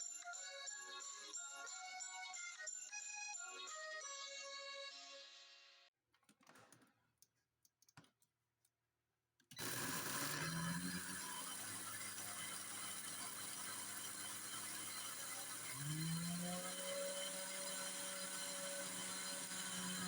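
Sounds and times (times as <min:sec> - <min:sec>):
electric blender grinding: 0:09.6 - 0:20.0.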